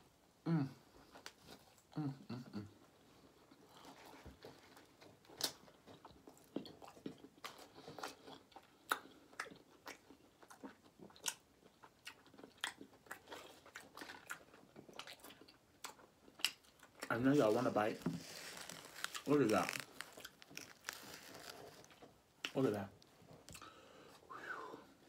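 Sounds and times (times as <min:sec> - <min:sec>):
chewing with wet smacks: 0:05.0 - 0:17.2.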